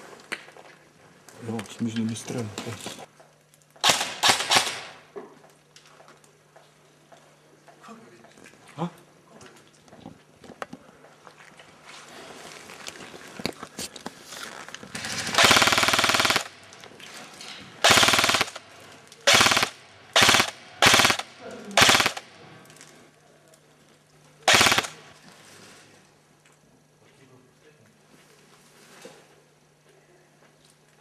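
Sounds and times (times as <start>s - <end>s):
airsoft gun firing rapid bursts: 3.8s - 5.0s, 15.0s - 16.7s, 17.8s - 22.4s, 24.5s - 25.0s.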